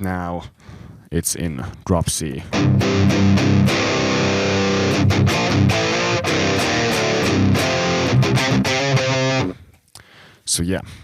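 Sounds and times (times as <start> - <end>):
distorted electric guitar riff: 2.5 - 9.6.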